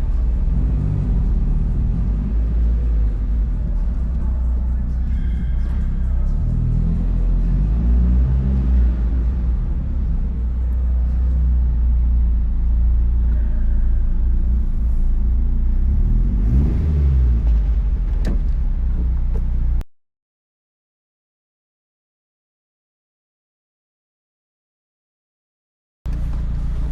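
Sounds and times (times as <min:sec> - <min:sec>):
car engine deep rumble: 0:00.0 - 0:19.9, 0:26.1 - 0:26.9.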